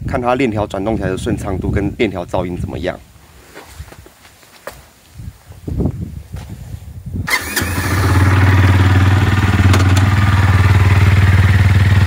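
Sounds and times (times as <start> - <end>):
motorcycle engine starting and idling: 7.2 - 12.0.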